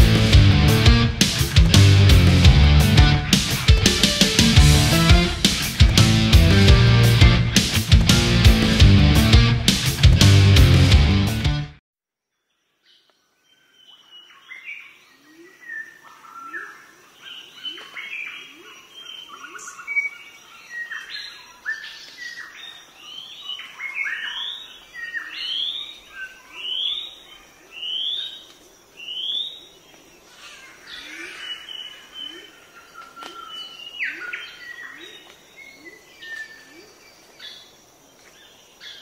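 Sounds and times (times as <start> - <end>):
birds chirping and calling: 0.0 - 10.1, 13.8 - 39.0
rising bird calls: 23.8 - 37.6.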